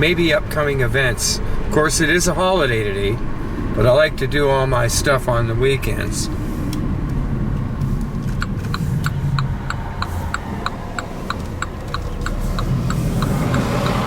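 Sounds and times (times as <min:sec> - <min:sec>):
engine and road rumble: 0:00.0 - 0:14.0
turn signal ticking: 0:06.6 - 0:14.0.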